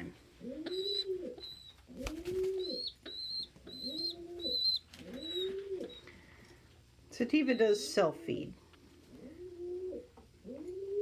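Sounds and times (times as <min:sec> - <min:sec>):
pigeons cooing: 0:00.0 - 0:06.3, 0:09.1 - 0:11.0
thin high peeping: 0:00.7 - 0:06.1.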